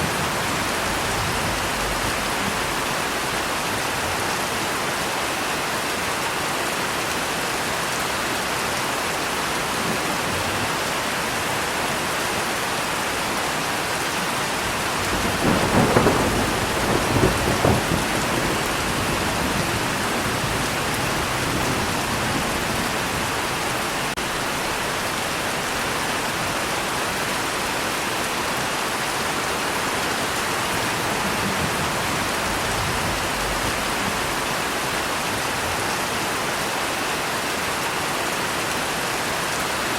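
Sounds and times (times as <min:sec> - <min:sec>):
thunder rumbling: 0:00.0 - 0:04.4, 0:14.6 - 0:25.1, 0:30.5 - 0:35.8
steady rain: 0:00.0 - 0:39.9.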